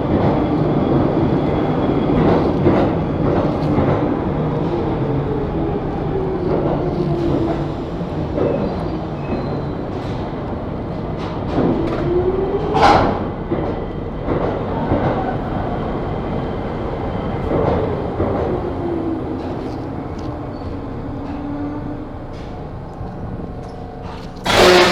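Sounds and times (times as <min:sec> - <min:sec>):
subway train rumbling on rails: 0:00.0 - 0:24.9
loud sharp burst: 0:24.4 - 0:24.9.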